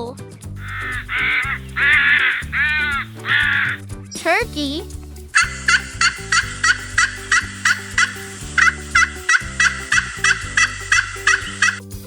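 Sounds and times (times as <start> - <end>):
background music: 0.0 - 12.0
turkey gobbling: 0.6 - 3.8.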